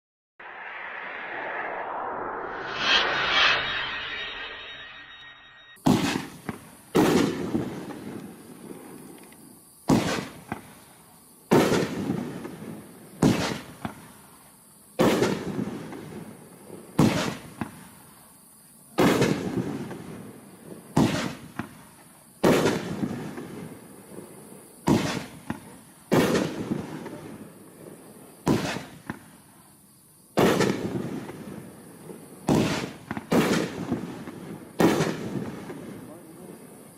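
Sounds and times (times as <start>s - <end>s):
fireworks bangs: 5.8s - 9.0s, 9.8s - 10.8s, 11.5s - 14.2s, 15.0s - 18.0s, 19.0s - 29.4s, 30.4s - 36.6s
fireworks rumble and crackle: 5.8s - 36.9s.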